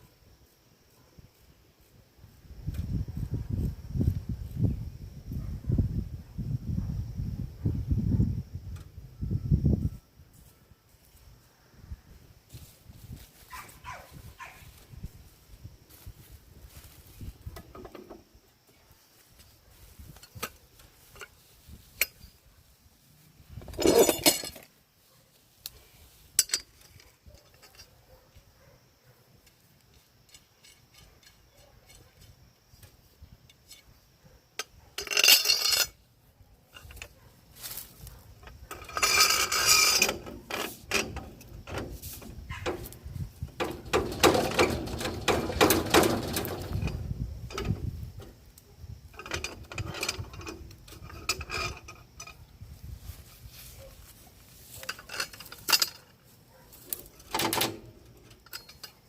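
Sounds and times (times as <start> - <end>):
metal tools clinking: 20.1 - 22.4, 23.6 - 24.8, 26.3 - 28.2, 29.9 - 32.4, 34.6 - 36.1, 36.7 - 52.5, 53.8 - 59.0
metal rattling bursts: 38.8 - 47.9.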